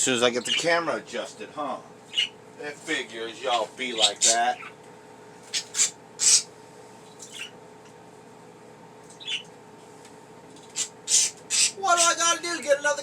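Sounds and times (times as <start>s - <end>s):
budgie chirps: 2.1s - 2.4s, 5.5s - 7.6s, 9.1s - 9.5s, 10.6s - 11.8s.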